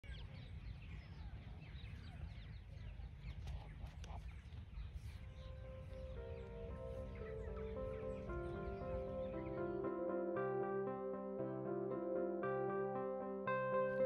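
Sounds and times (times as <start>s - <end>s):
small birds chirping: 0.0s - 14.0s
soft background music: 5.0s - 14.0s.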